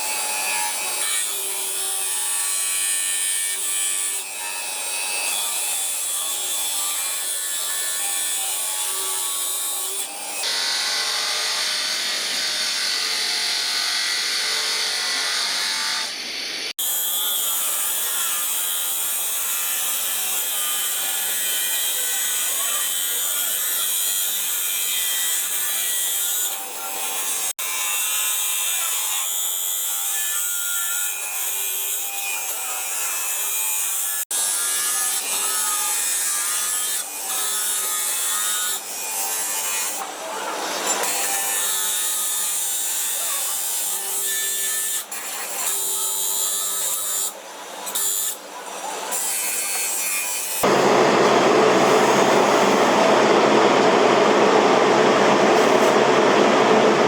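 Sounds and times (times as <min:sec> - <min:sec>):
power tool grinding: 0:46.6 - 0:57.0.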